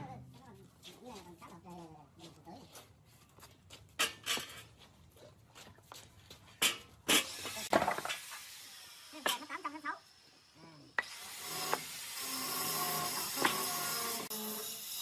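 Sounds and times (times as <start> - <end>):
hiss: 7.1 - 12.4.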